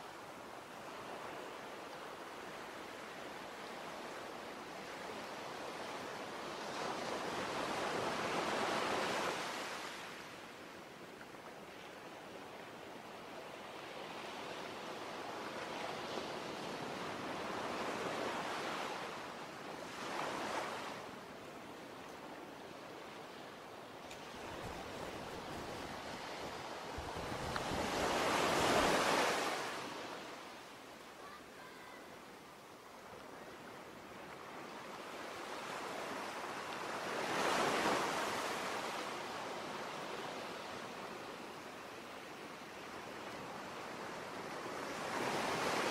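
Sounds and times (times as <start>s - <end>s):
sea waves washing in: 24.2s - 30.6s.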